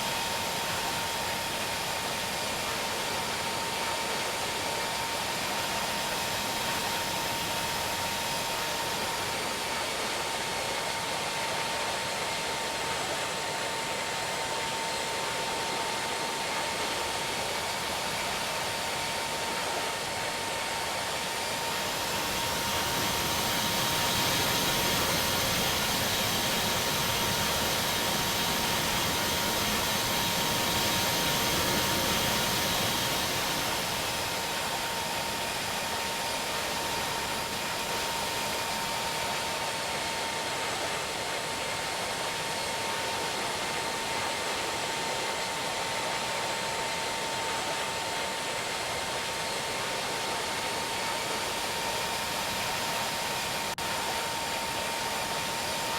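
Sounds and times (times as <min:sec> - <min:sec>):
jet engines whining: 0:17.0 - 0:39.9.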